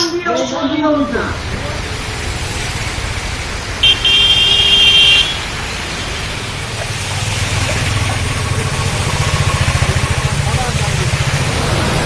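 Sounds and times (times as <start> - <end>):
traffic rumble: 0.0 - 12.0
vehicle horn honking: 3.8 - 6.4.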